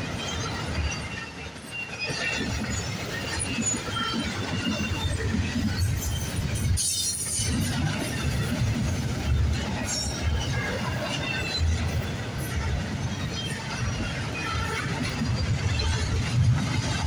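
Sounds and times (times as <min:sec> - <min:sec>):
high wheel squeals: 0:00.0 - 0:08.4
steel wheels clattering on rails: 0:00.0 - 0:17.0.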